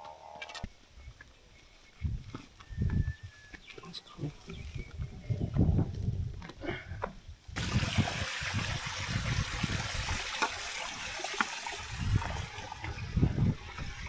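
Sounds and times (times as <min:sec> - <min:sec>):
running water trickling: 0:07.6 - 0:14.0.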